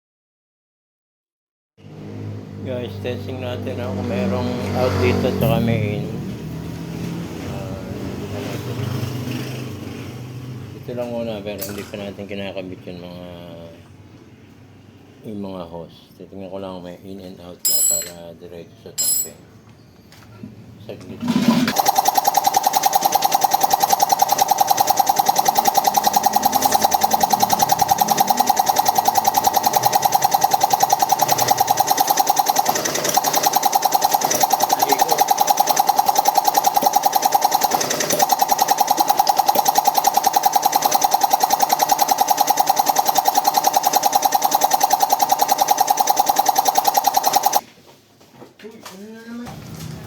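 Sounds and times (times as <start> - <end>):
air compressor running: 21.7 - 47.6.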